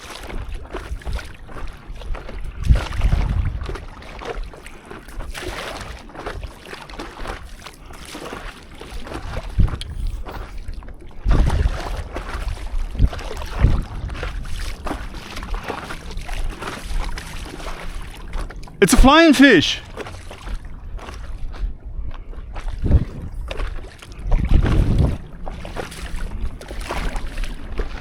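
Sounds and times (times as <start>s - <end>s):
water splashing around paddle: 0.0s - 18.7s, 19.9s - 21.7s, 22.4s - 28.0s
wind gusting on microphone: 2.6s - 3.7s, 24.2s - 25.3s.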